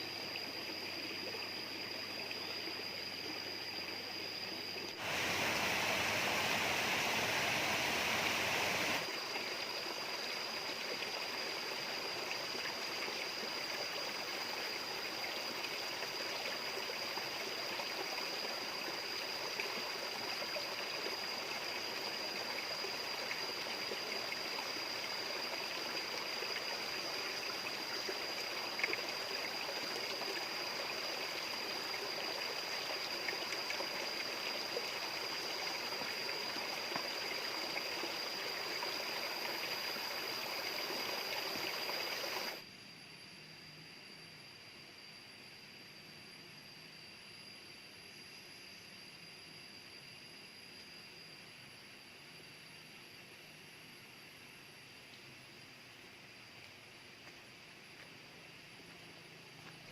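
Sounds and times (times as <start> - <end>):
stream running: 0.0 - 42.6.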